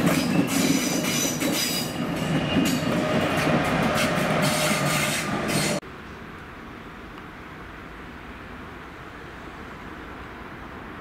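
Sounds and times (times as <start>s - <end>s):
train wheels clattering over joints: 0.0s - 5.8s.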